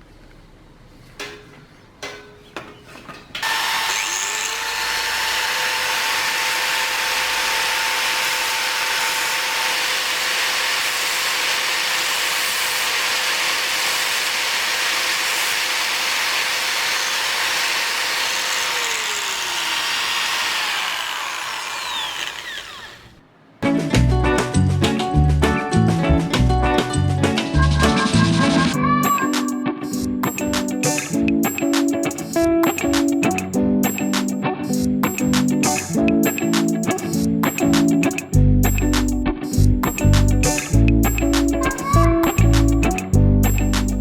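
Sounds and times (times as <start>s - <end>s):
electric drill running: 3.4s - 23.2s.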